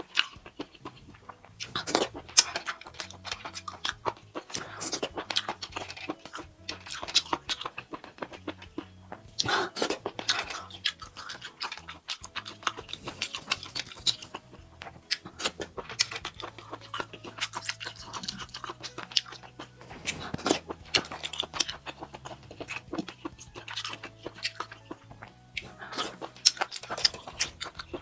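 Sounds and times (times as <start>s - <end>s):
close chewing with mouth clicks: 0.0s - 28.0s.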